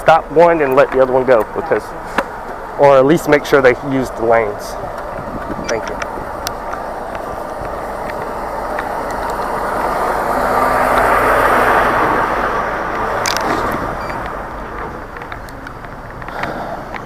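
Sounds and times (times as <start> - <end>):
vehicle driving past: 1.5 - 15.0.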